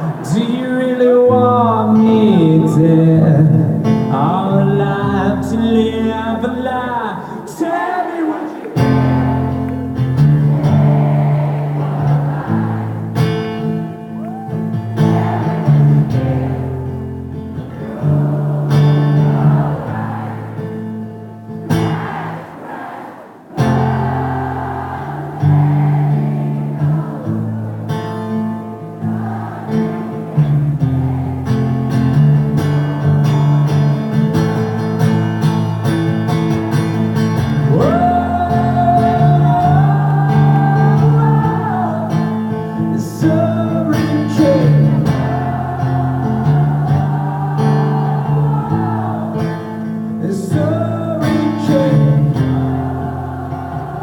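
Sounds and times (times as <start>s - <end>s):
person singing: 0.0s - 9.3s, 37.7s - 54.0s
acoustic guitar strumming: 0.0s - 22.9s, 23.5s - 54.0s.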